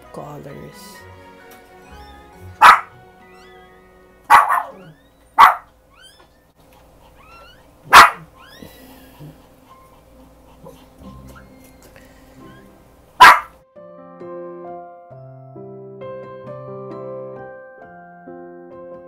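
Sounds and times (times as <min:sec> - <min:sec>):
soft background music: 0:00.0 - 0:05.6, 0:08.7 - 0:19.0
dog barking: 0:02.6 - 0:03.0, 0:04.3 - 0:05.7, 0:07.9 - 0:08.3, 0:13.2 - 0:13.6.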